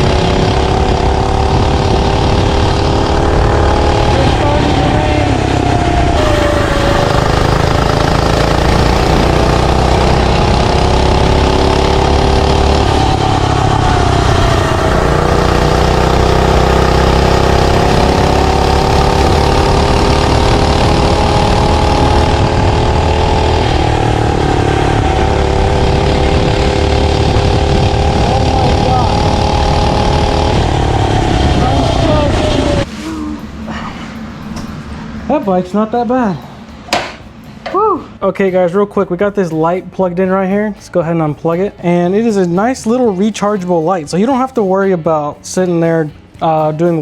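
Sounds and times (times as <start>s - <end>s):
small gas engine revving: 0.0s - 32.9s.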